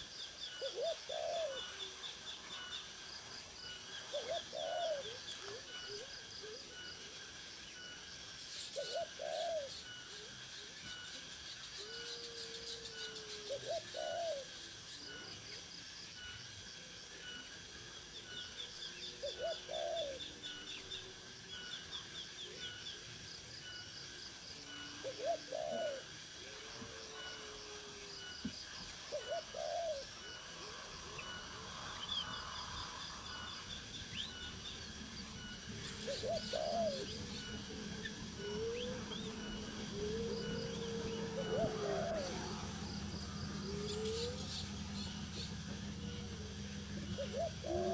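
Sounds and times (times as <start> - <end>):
high bird trills: 28.8 - 47.9
low-pitched bird calls: 28.9 - 47.9.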